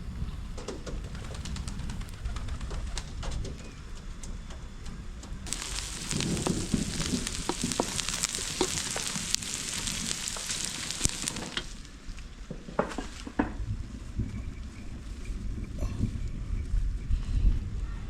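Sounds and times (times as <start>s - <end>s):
stirring clicks: 5.5s - 11.9s
food sizzling in hot oil: 5.5s - 12.0s.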